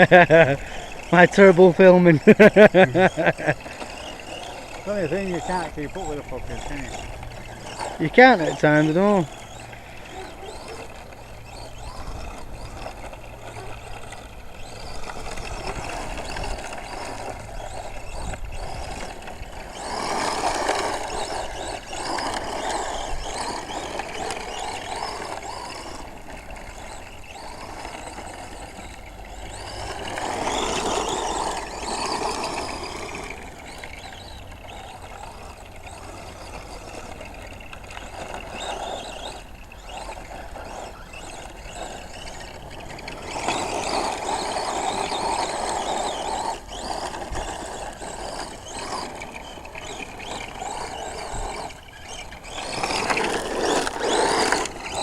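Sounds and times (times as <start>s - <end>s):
radio-controlled truck motor: 0.0s - 55.0s.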